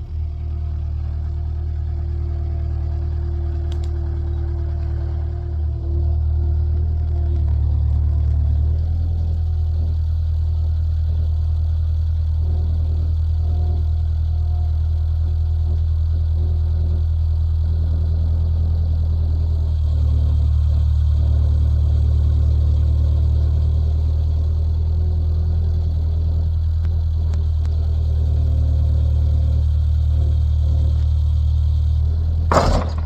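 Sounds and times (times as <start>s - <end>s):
engine running with low hum: 0.0s - 33.0s
faint knocks: 32.5s - 33.0s.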